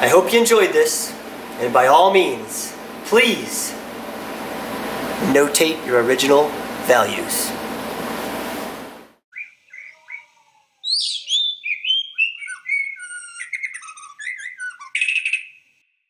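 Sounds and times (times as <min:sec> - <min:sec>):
songbird singing: 0:09.3 - 0:15.7.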